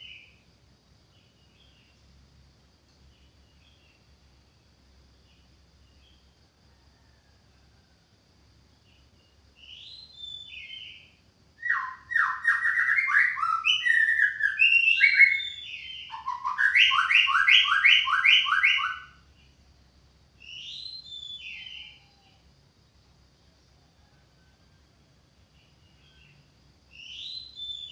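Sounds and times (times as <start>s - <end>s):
bird singing whistled notes: 0.0s - 0.4s, 9.6s - 19.5s, 20.4s - 22.3s, 25.7s - 27.9s.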